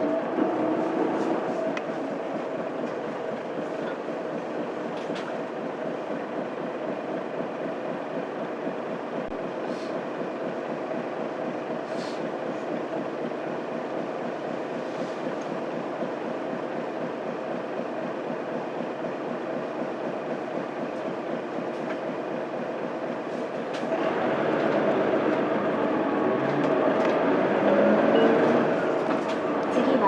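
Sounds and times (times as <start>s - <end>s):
bus diesel engine running: 0.0s - 30.0s
road noise: 23.9s - 30.0s.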